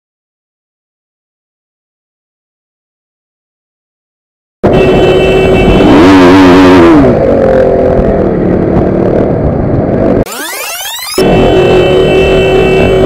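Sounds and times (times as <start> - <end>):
sweeping electronic sound effect: 10.3 - 12.1.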